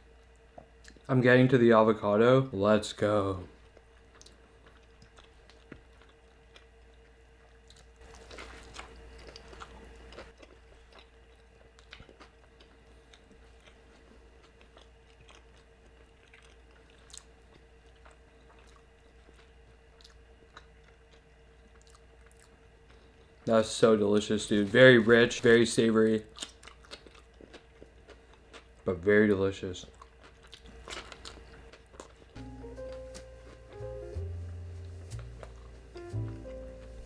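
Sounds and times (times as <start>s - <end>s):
faint steady hum: 0.0s - 37.0s
person chewing food: 3.6s - 23.5s, 26.2s - 28.9s, 29.8s - 37.0s.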